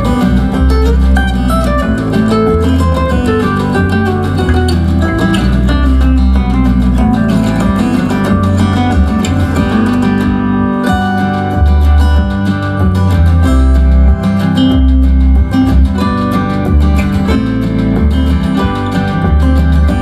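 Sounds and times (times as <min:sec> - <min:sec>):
guitar music with deep bass: 0:00.0 - 0:20.0.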